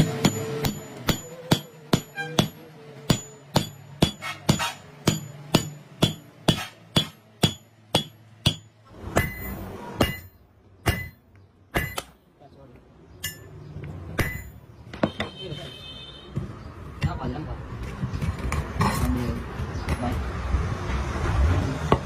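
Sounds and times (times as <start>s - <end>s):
hammer striking metal: 0.0s - 12.2s, 13.2s - 15.4s.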